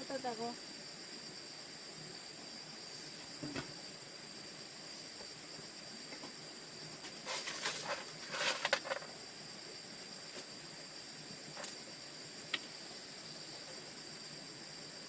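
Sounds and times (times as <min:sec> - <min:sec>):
insects chirring: 0:00.0 - 0:15.0
rustling and scraping: 0:06.1 - 0:09.2.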